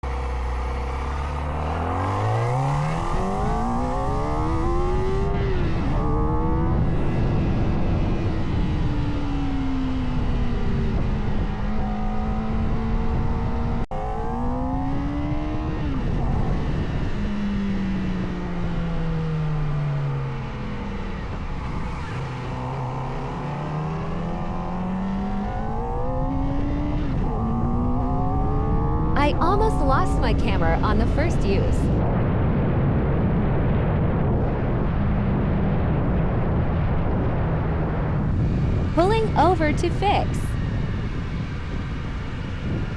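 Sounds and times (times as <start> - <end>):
motorcycle engine revving through gears: 0.0 - 29.7
heavy wind noise: 0.0 - 42.9.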